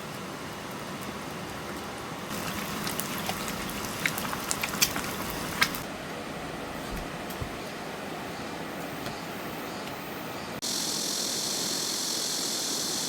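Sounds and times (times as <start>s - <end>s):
soup bubbling in a pot: 0.0s - 6.0s.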